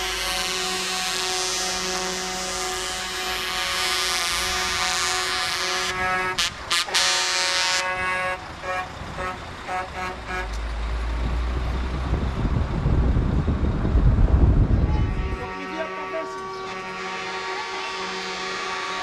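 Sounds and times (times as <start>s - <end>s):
truck air horns blasting: 0.0s - 10.6s, 14.8s - 19.0s
heavy trucks rumbling: 0.0s - 19.0s
short horn toots: 14.9s - 19.0s.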